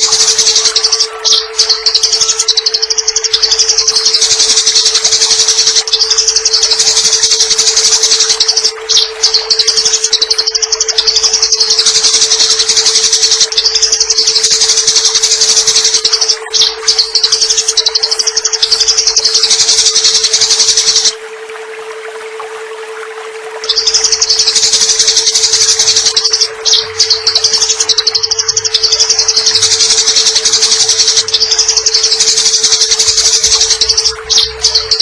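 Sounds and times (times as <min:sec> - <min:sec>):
sparrow chattering: 0:00.0 - 0:21.1, 0:23.7 - 0:35.0
steady low hum: 0:00.0 - 0:35.0.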